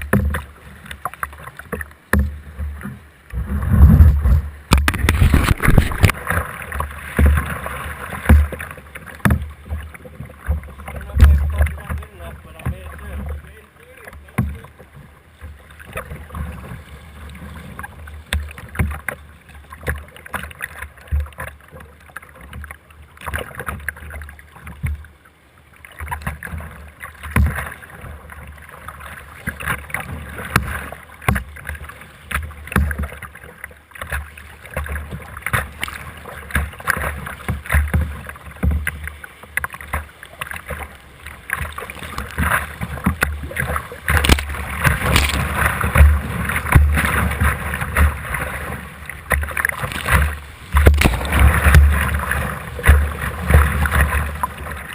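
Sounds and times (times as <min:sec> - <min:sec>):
paddle strokes splashing: 0:00.0 - 0:54.9
waves breaking over boat: 0:00.0 - 0:54.9
whitewater rushing: 0:03.3 - 0:09.0, 0:39.6 - 0:54.9.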